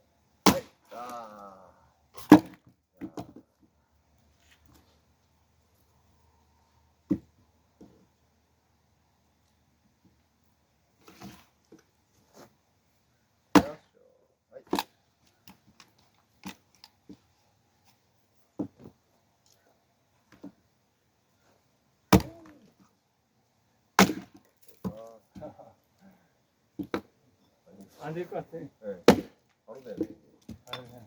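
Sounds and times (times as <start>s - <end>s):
axe blows striking logs: 0.4s - 1.2s, 2.2s - 2.6s, 13.5s - 13.9s, 22.1s - 22.6s, 24.0s - 25.0s, 29.0s - 29.4s.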